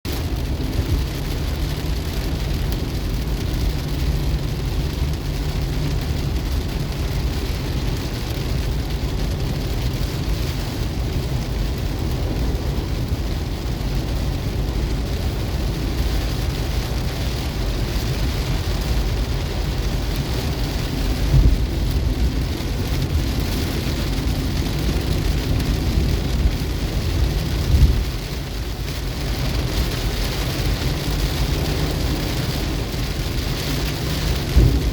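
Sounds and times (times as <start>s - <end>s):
heavy rain on car roof: 0.0s - 34.9s
low road rumble: 0.0s - 34.9s
low thuds: 21.3s - 21.7s, 34.4s - 34.9s.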